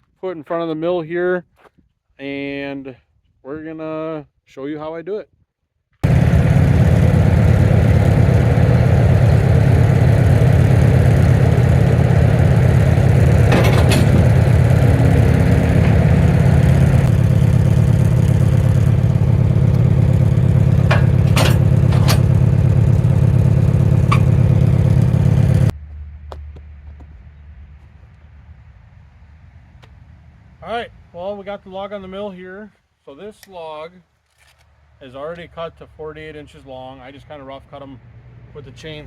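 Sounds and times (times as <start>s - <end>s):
engine running: 6.0s - 27.1s
sharp knocks: 11.1s - 23.0s, 24.0s - 24.6s.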